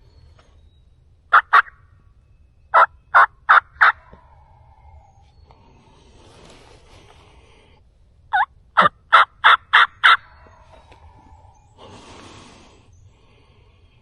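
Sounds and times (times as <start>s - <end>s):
turkey yelps: 1.3s - 1.8s, 2.7s - 5.3s, 8.3s - 11.5s.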